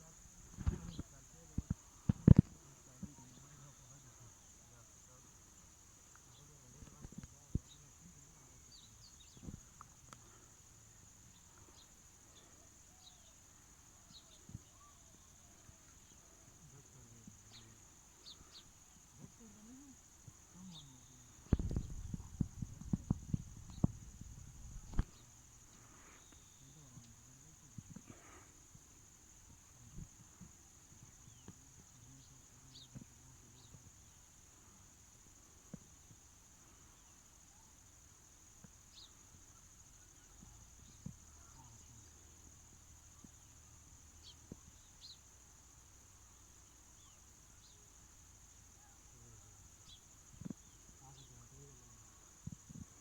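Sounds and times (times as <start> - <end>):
bird chirps: 11.3 - 13.4
short low thuds: 21.4 - 25.2.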